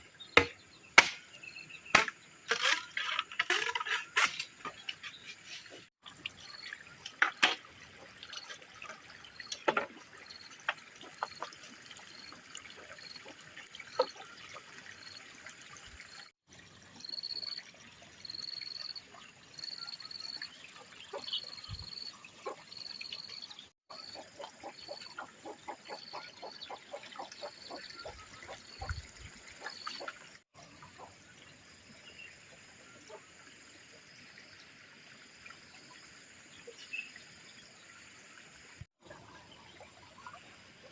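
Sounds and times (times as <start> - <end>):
water trickling: 6.0 - 40.9.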